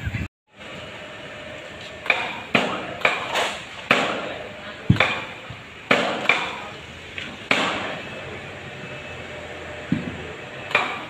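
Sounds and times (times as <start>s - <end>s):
metal-on-metal knocks: 2.0s - 4.3s.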